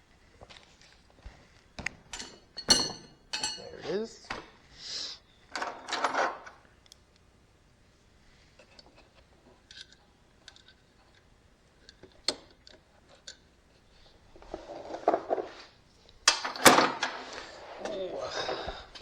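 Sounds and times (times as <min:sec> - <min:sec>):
nut and washer clicking: 0:16.3 - 0:17.2.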